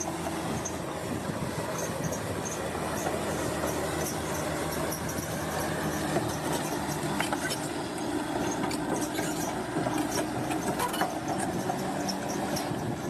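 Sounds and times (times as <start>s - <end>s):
bulldozer diesel engine running: 0.0s - 13.0s
clanks and clicks: 8.3s - 13.0s.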